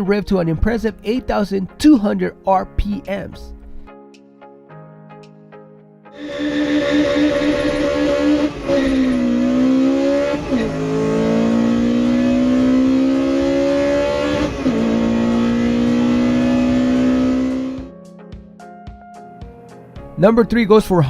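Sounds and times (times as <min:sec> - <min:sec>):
car engine revving hard: 0:06.2 - 0:17.9.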